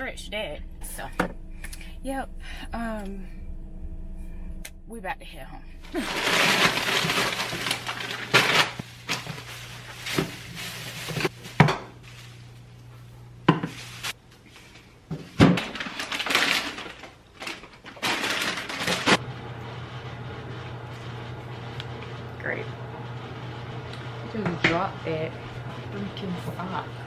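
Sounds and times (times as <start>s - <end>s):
rustling: 5.8s - 19.2s
objects knocking and clattering: 15.1s - 19.2s.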